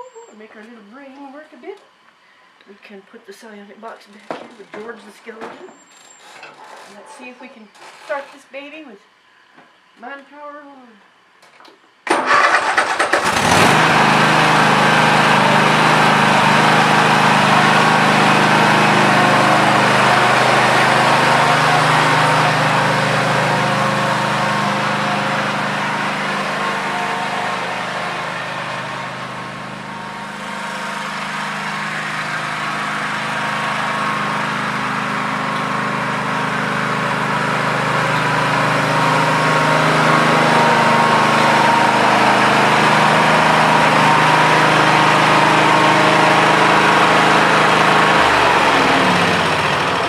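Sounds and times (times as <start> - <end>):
small gasoline engine droning: 12.2 - 50.0.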